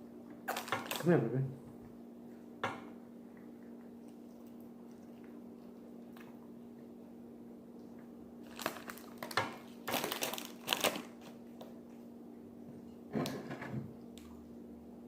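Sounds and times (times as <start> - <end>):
steady low hum: 0.0 - 10.4
food packaging crinkling: 0.4 - 1.1, 8.4 - 11.7.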